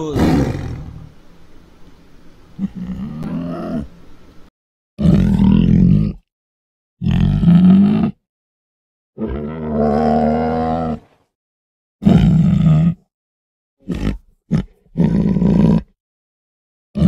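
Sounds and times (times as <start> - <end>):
tiger grunts: 0.0 - 1.1, 2.6 - 3.9, 12.0 - 13.0, 13.8 - 15.9
tiger roaring and growling: 0.0 - 1.2, 2.6 - 3.9, 5.0 - 6.3, 7.0 - 8.2, 9.2 - 11.2, 12.0 - 13.1, 13.8 - 16.0.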